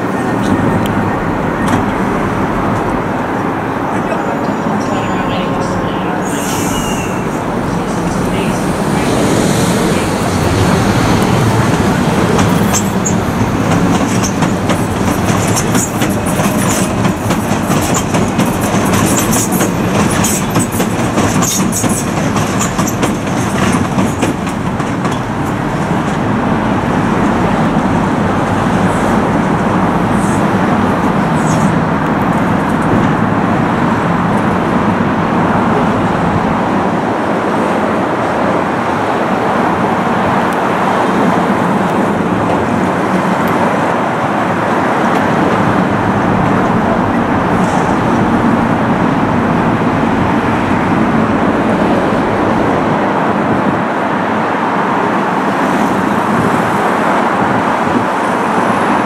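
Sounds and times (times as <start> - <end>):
train rumbling over track: 0.0 - 59.0
high wheel squeals: 4.1 - 10.4
wheels clicking over rail joints: 10.2 - 26.5.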